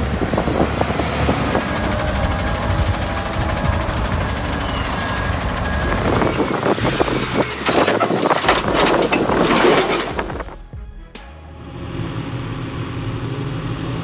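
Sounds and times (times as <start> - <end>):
dense clattering and crunching: 0.0 - 10.8
heavy truck engine running: 0.0 - 14.0.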